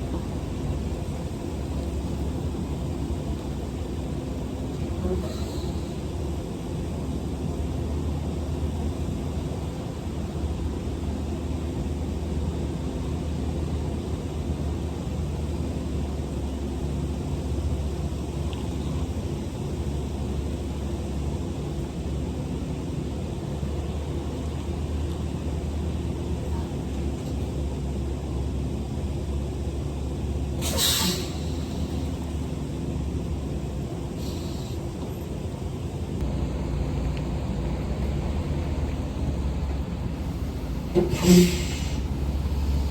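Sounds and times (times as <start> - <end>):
diesel engine drone: 0.0 - 42.9
tyre and road noise: 29.7 - 42.9.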